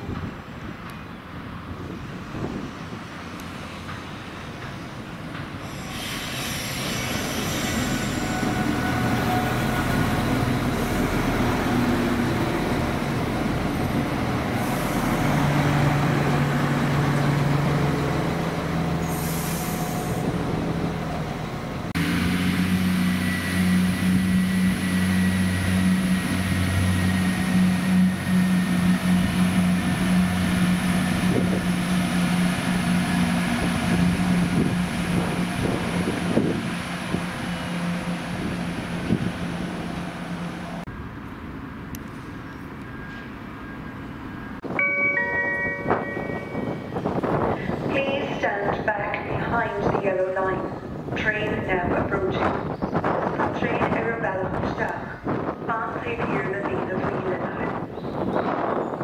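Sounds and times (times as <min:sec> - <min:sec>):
railcar running past: 0:00.0 - 0:59.0.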